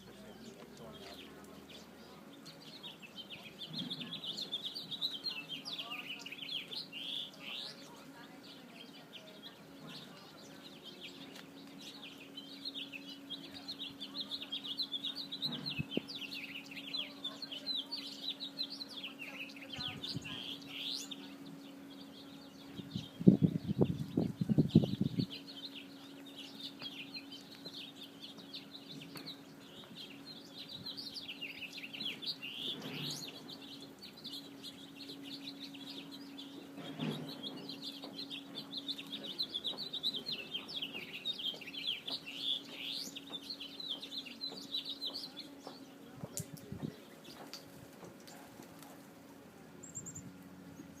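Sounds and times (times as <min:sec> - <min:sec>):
small birds chirping: 0:00.0 - 0:51.0
steady low hum: 0:00.0 - 0:51.0.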